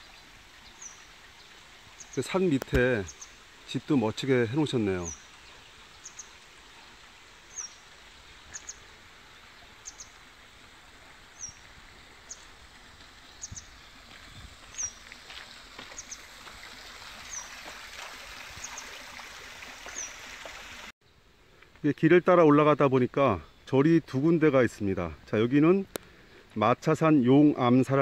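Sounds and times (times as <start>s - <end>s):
mountain stream rushing: 0.0s - 20.9s.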